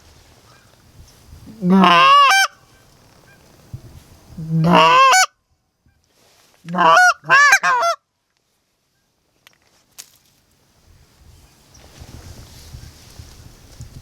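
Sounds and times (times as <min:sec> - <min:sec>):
goose honking: 0:01.5 - 0:02.6, 0:04.4 - 0:05.3, 0:06.7 - 0:08.0.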